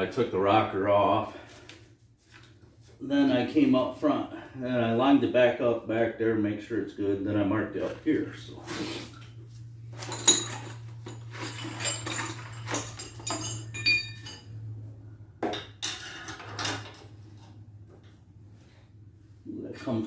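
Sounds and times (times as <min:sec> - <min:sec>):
metal parts clanking: 0:10.0 - 0:14.6, 0:15.5 - 0:17.1.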